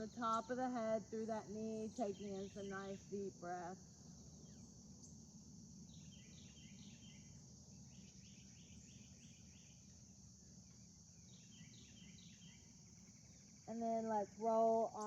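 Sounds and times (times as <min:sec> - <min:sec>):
faint bird chirps: 0:04.2 - 0:15.0.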